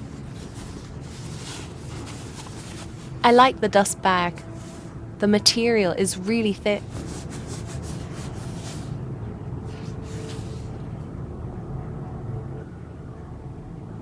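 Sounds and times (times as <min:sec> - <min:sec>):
rustling: 0:00.0 - 0:03.5, 0:04.3 - 0:05.0, 0:06.4 - 0:09.0, 0:09.7 - 0:11.0
low background rumble: 0:00.0 - 0:14.0.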